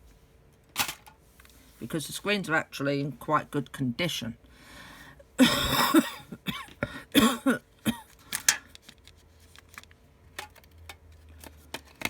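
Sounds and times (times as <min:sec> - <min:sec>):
man coughing: 0:05.4 - 0:08.1.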